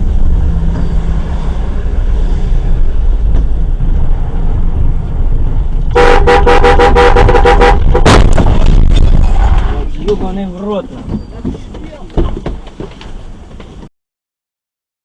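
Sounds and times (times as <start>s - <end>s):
vehicle rumble and road noise: 0.0s - 13.9s
vehicle horn short blasts: 5.9s - 8.1s.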